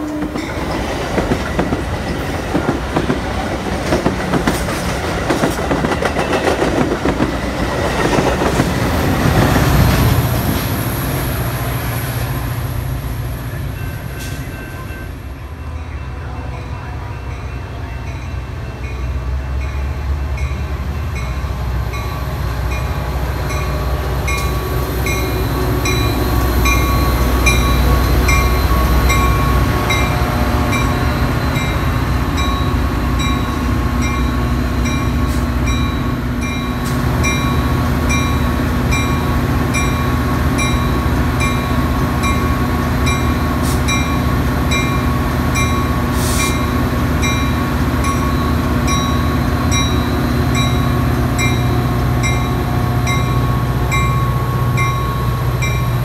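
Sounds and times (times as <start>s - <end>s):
train rumbling past: 0.0s - 56.0s
bell ringing evenly: 24.3s - 39.2s, 47.2s - 56.0s.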